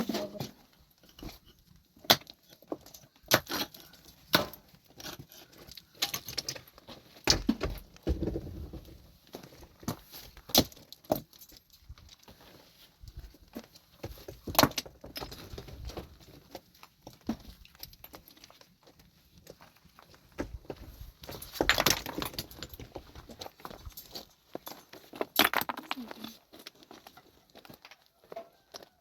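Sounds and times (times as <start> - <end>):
hard objects clinking and knocking: 21.3 - 22.9, 23.7 - 26.4.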